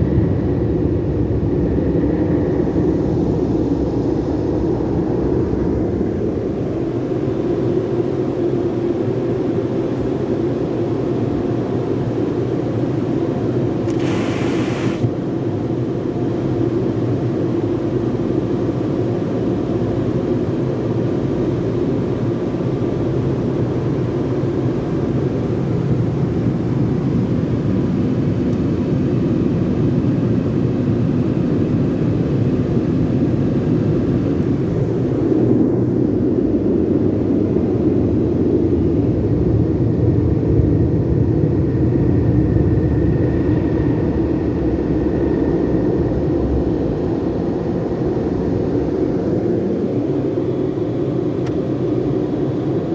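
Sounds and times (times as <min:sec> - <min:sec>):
burst of hiss: 0:13.9 - 0:15.1.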